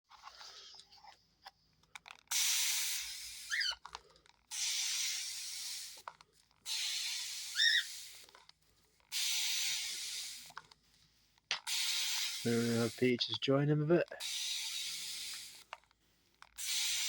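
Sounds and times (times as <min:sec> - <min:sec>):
water sprayer hissing: 0:02.3 - 0:03.7, 0:04.5 - 0:08.4, 0:09.1 - 0:10.6, 0:11.5 - 0:15.7, 0:16.6 - 0:17.0
cockatiel chirping: 0:06.8 - 0:08.0.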